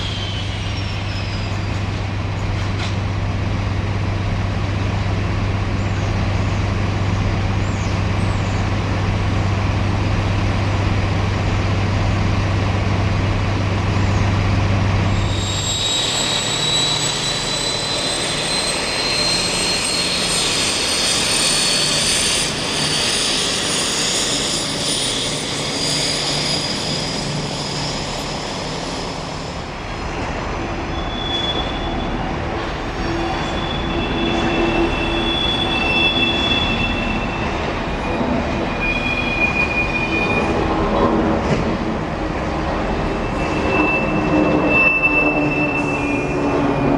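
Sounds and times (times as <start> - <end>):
train low hum: 0.0 - 46.9
train whine rising in pitch: 13.8 - 46.9.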